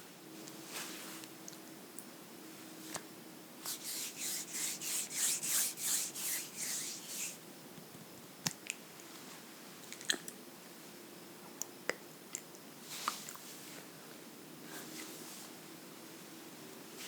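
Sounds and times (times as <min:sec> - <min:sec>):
scratching on book surface: 0:03.7 - 0:07.4.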